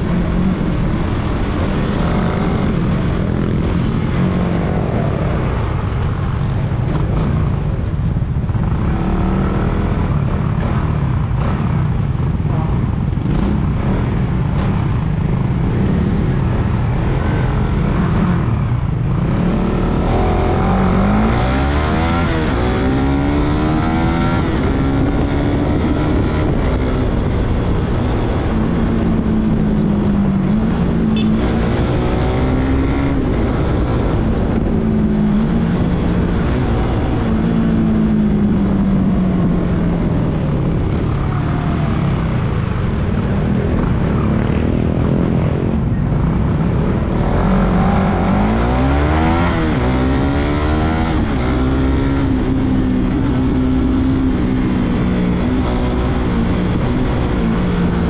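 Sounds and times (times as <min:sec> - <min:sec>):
low wind rush: 0:00.0 - 0:58.0.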